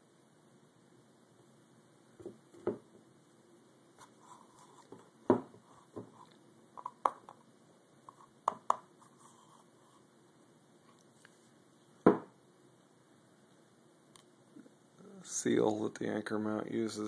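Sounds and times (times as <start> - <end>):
parts knocking on hard surface: 2.2 - 2.9, 4.9 - 6.1, 12.1 - 12.3.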